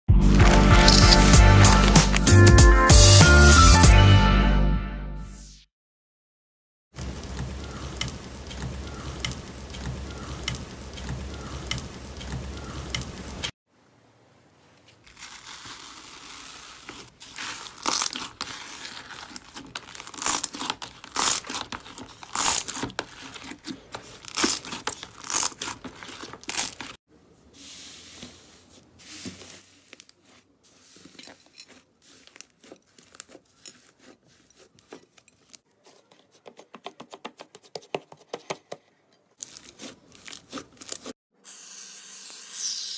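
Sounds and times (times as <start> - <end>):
background music with steady beat: 0.1 - 5.6
slime crackling and popping: 15.1 - 27.0.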